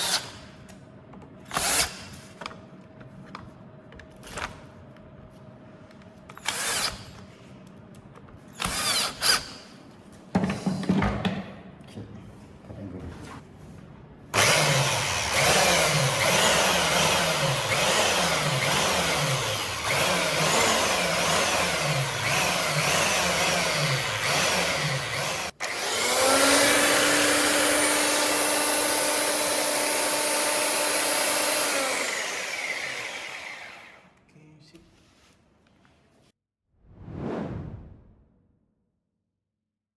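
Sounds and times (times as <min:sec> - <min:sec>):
belt sander running: 0:14.4 - 0:34.1.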